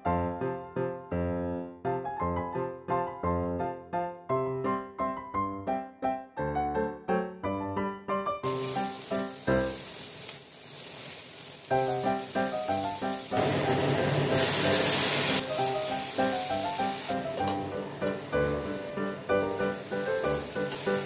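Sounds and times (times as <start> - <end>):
piano music: 0.0 - 10.1, 11.7 - 21.0
vegetables sizzling in oil: 8.4 - 21.0.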